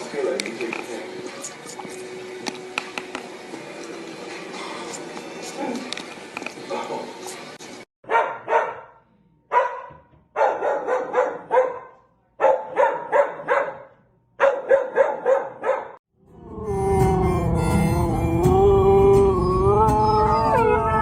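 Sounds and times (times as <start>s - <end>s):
dog barking: 8.0s - 16.0s.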